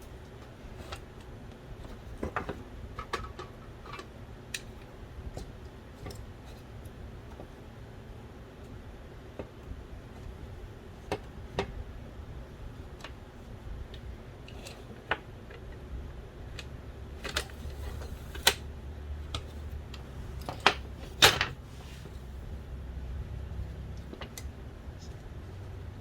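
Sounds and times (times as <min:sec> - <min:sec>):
parts clattering: 0:17.2 - 0:22.3.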